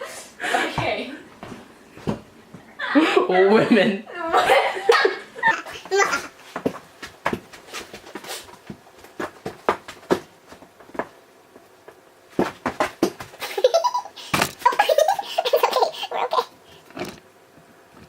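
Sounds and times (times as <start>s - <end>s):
person laughing: 13.4s - 16.5s.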